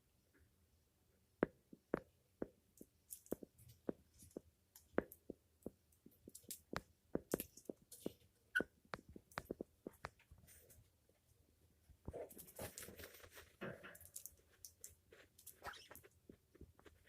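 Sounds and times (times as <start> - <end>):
beak clicks and taps: 2.8 - 10.3.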